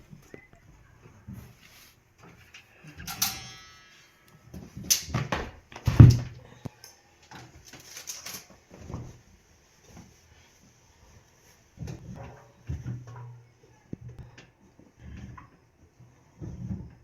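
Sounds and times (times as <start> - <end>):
small clatters: 2.2 - 9.2.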